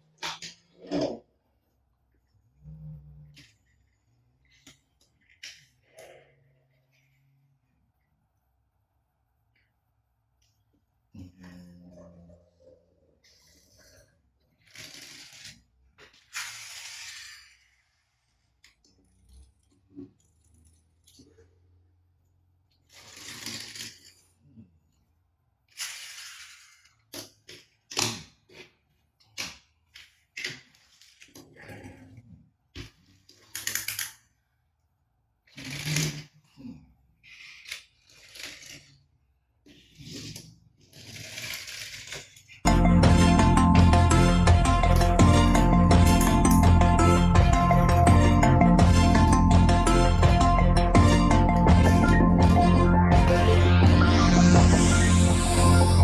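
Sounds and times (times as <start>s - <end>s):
plastic toys clicking and rattling: 33.2s - 34.4s.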